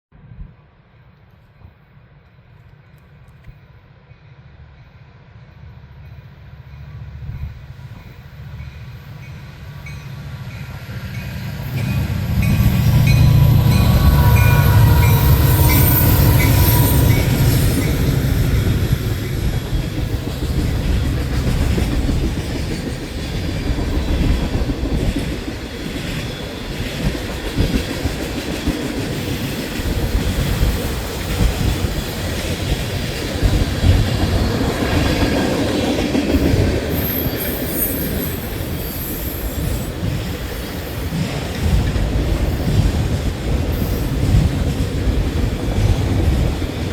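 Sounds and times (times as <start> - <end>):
diesel locomotive rumble: 7.2 - 46.9.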